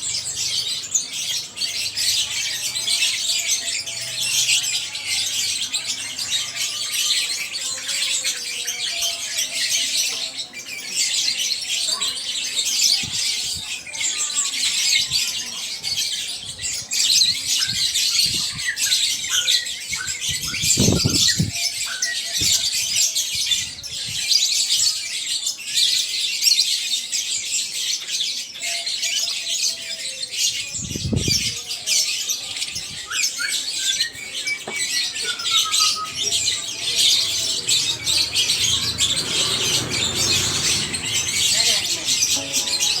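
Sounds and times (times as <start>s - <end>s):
caged birds chirping and trilling: 0.0s - 43.0s.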